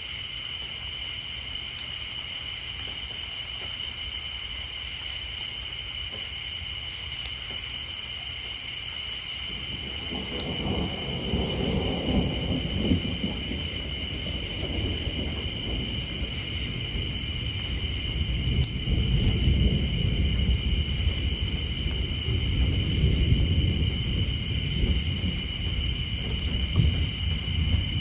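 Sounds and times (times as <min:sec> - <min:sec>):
tree frogs chorus: 0:00.0 - 0:28.0
thunder rumbling: 0:09.4 - 0:28.0.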